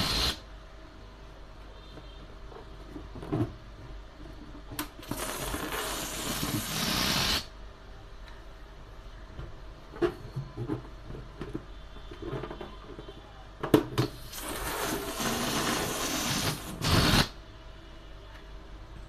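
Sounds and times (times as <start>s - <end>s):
balloon bursting: 0.0s - 0.4s, 5.0s - 7.5s, 14.2s - 17.4s
steady hiss: 0.0s - 0.5s, 4.9s - 7.5s, 14.1s - 17.4s
rubber balloons being handled: 4.4s - 7.5s, 14.1s - 17.4s.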